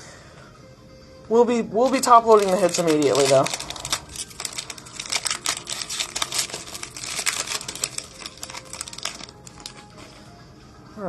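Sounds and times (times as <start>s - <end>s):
plastic packaging crinkling: 1.8s - 10.3s.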